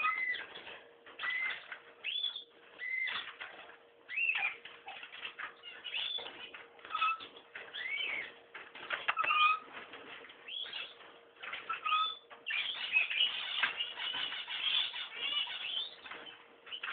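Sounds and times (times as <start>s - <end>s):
bird chirps and whistled calls: 0.0s - 0.5s, 1.2s - 3.3s, 4.1s - 4.6s, 5.6s - 8.4s, 11.7s - 16.9s.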